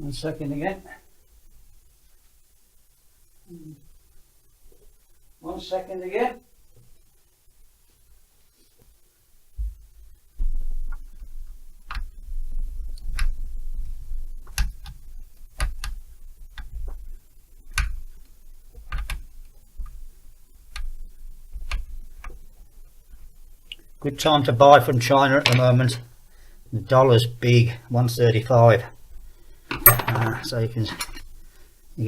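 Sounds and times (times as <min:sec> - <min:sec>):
hand tools clicking on metal parts: 0:29.8 - 0:30.5.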